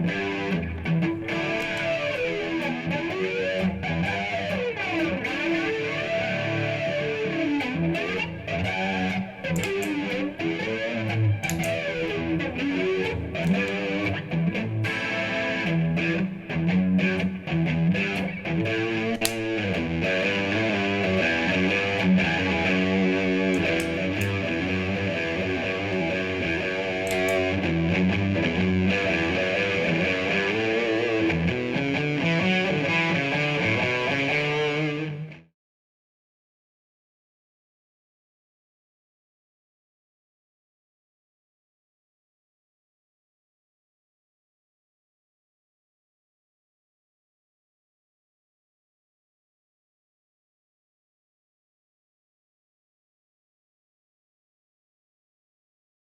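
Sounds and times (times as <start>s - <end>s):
electric guitar playing: 0.0s - 35.5s.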